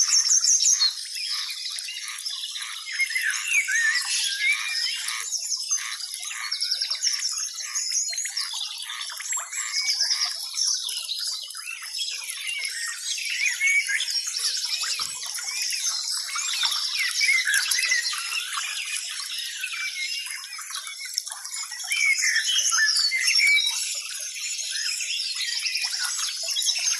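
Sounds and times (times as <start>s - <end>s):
small birds chirping: 0.0s - 26.9s.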